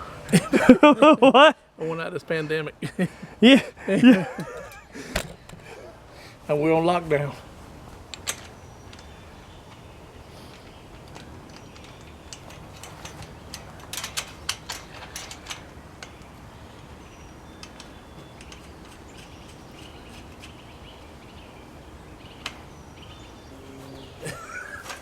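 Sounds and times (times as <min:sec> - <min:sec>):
sharp clicks and knocks: 0:10.5 - 0:16.9
bird chirps: 0:16.0 - 0:25.0.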